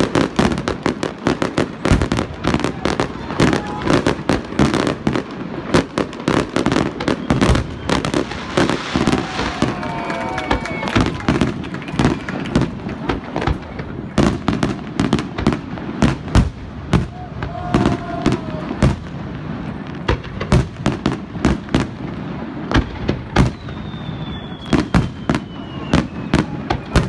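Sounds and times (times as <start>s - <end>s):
fireworks bursting with bangs: 0.0s - 27.0s
thin falling whistle: 23.5s - 27.0s.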